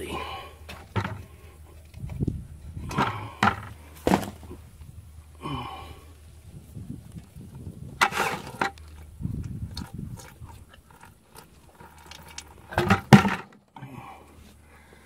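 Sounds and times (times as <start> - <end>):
steady low hum: 0.0 - 15.0
knocks and clunks of hand work: 0.7 - 1.3, 12.7 - 13.6.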